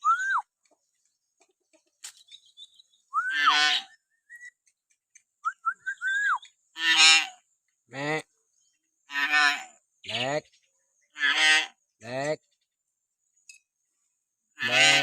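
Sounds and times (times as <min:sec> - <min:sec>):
bird whistling: 0:00.0 - 0:00.5, 0:02.2 - 0:04.6, 0:05.4 - 0:06.6.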